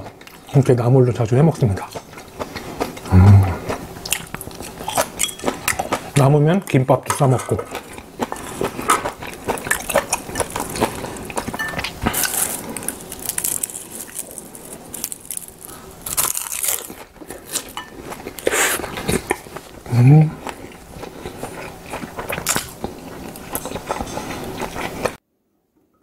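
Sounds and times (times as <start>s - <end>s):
biting and chewing: 1.5s - 25.2s
seaweed sheet crackling: 12.0s - 17.6s.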